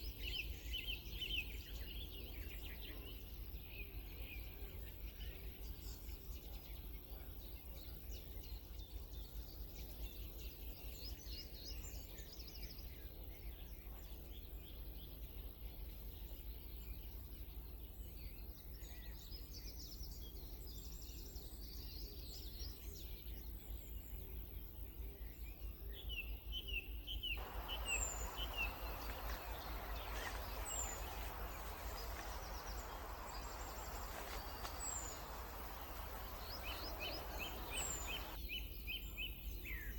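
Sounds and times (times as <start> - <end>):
wild birds singing: 27.2 - 38.4
loud hiss: 27.4 - 38.4.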